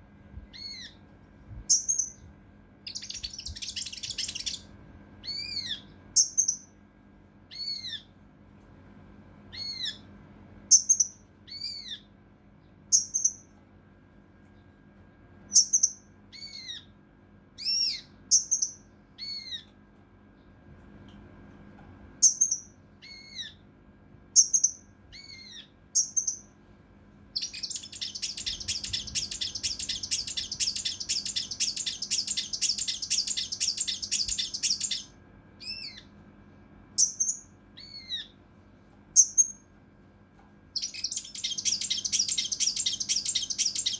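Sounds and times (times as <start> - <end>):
bird calling: 2.9 - 4.6, 27.4 - 36.1, 40.8 - 43.9
fast rough bird chatter: 2.9 - 4.6, 27.4 - 35.1, 40.8 - 43.9.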